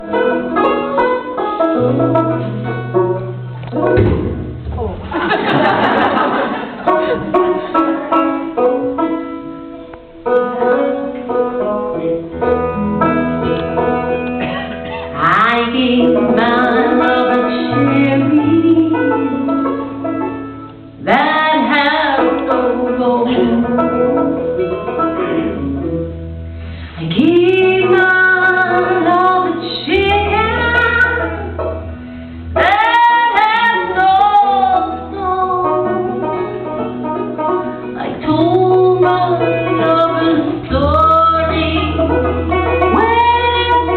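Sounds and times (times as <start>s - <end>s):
plucked strings: 0.0s - 43.9s
woman singing: 15.0s - 19.8s, 21.0s - 25.8s, 26.9s - 31.7s, 32.6s - 36.9s, 37.8s - 43.9s.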